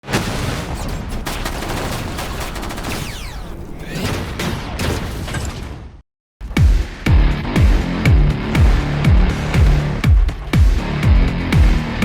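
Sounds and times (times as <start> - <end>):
gunfire-like bursts: 0.0 - 5.1
booms: 0.0 - 6.0.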